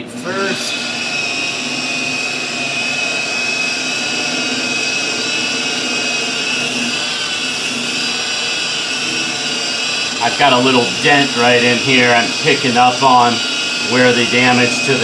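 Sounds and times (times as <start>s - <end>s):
rotary polisher whining: 0.0s - 15.0s.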